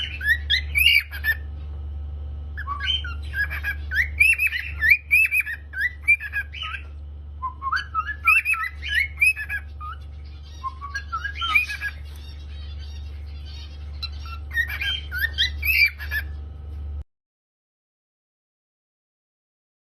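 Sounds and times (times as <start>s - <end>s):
cockatiel whistling: 0.0s - 1.5s, 2.6s - 16.4s
steady low hum: 0.0s - 17.0s.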